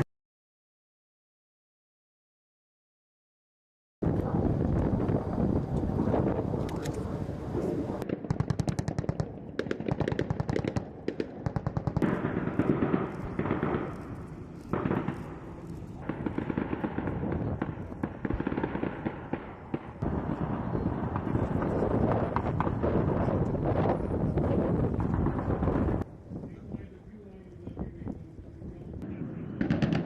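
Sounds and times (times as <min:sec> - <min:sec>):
machine-gun fire: 0:08.0 - 0:23.9, 0:29.0 - 0:30.0
steady background noise: 0:08.9 - 0:30.0.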